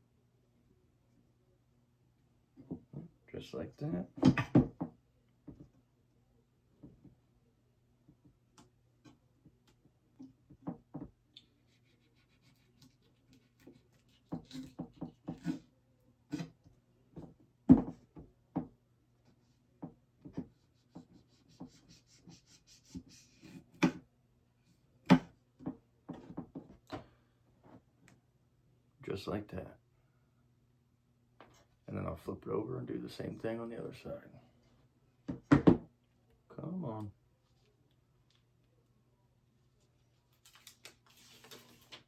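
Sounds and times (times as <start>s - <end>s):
faint steady hum: 0.0s - 42.0s
knife cutting rubber strip: 11.6s - 15.7s, 16.3s - 16.6s
taps knocks and scraping rubs: 13.6s - 15.6s, 19.8s - 24.0s.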